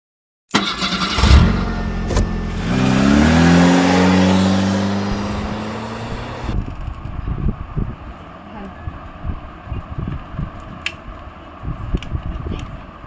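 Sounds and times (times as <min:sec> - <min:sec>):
car engine revving: 0:00.6 - 0:06.6.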